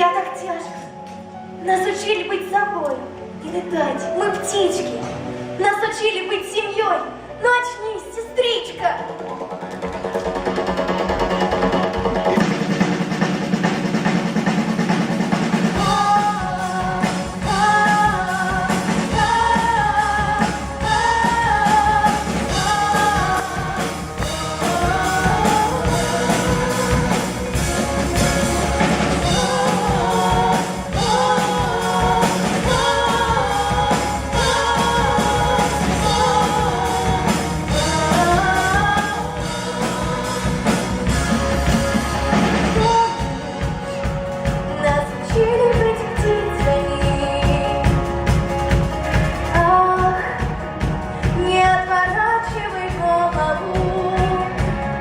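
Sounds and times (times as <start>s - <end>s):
bass: 0.0s - 55.0s
drums: 0.0s - 55.0s
person singing: 15.8s - 41.9s.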